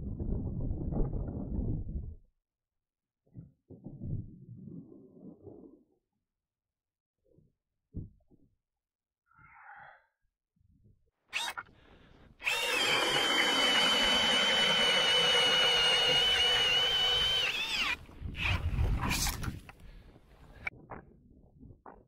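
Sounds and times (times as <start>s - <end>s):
powered ice auger drilling: 11.4s - 11.7s, 12.4s - 19.4s.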